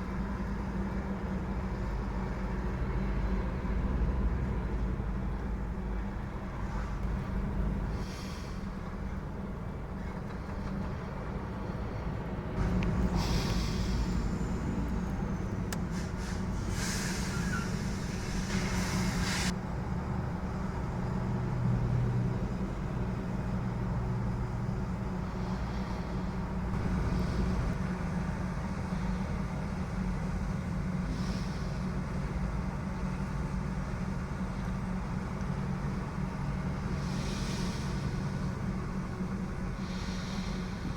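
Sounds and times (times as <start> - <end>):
diesel truck engines droning: 0.0 - 40.9
short air hisses: 8.0 - 8.7, 13.1 - 14.4, 15.8 - 19.6, 37.0 - 38.5, 39.8 - 40.9.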